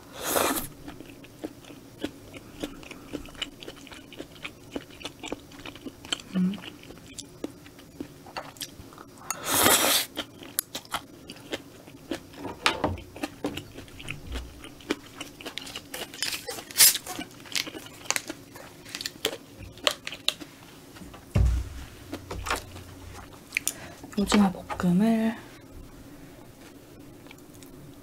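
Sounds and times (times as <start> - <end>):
chewing and crunching: 0.5 - 20.7.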